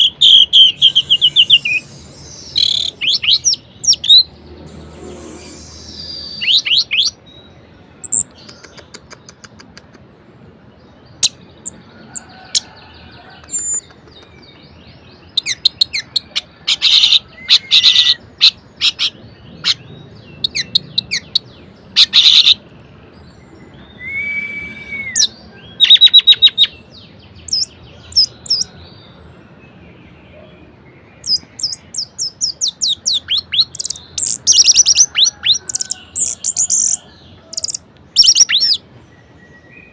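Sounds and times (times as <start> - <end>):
thrush singing: 0.0 - 7.1.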